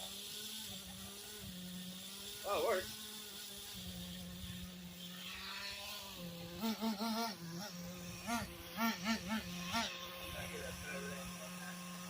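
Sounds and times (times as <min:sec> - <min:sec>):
rc truck nitro engine revving: 0:00.0 - 0:12.0.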